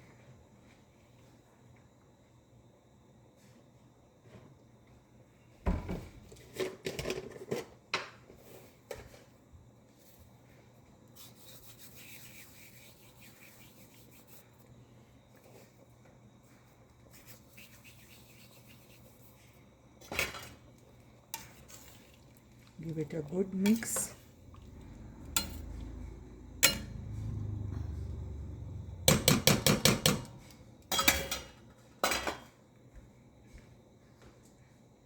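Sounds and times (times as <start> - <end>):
soft rustling rub: 9.9 - 14.6
utensils knocking on pot: 25.3 - 25.7, 26.6 - 27.2, 29.1 - 32.4.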